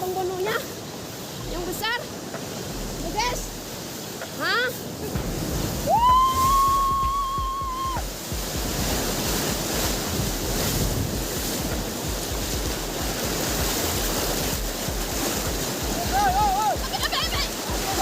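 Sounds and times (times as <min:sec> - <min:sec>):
ocean waves crashing: 0:00.0 - 0:18.0
wind buffeting microphone: 0:00.0 - 0:18.0
high-pitched tone: 0:01.4 - 0:02.1, 0:02.7 - 0:03.9.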